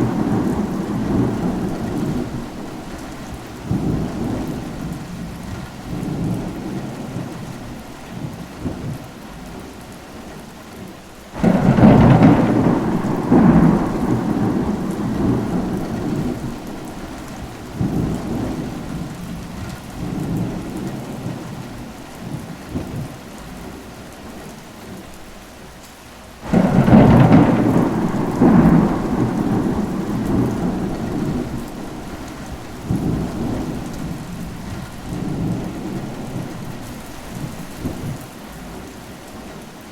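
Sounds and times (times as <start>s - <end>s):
thunder claps rolling: 0.0s - 7.5s, 11.4s - 21.6s, 26.4s - 38.3s
faint thunder rumbles: 0.0s - 10.5s, 11.3s - 25.1s, 26.4s - 39.9s
steady rain: 0.0s - 39.9s.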